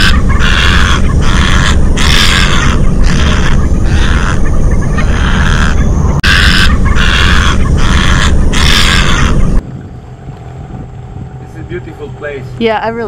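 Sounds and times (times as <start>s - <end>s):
heron harsh calls: 0.0s - 9.5s
low rumble: 0.0s - 13.0s.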